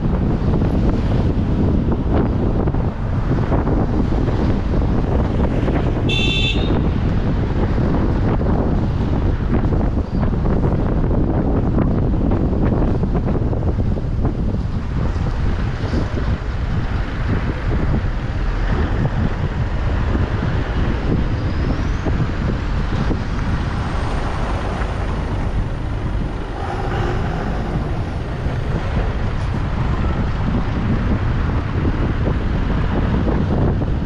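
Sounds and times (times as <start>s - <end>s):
car road noise: 0.0s - 34.0s
wind buffeting microphone: 0.0s - 34.0s.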